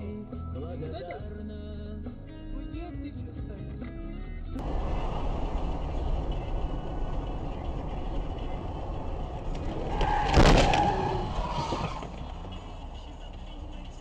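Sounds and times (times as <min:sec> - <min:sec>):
loud collision bang: 0:04.6 - 0:12.1
vehicle road noise: 0:04.6 - 0:14.0.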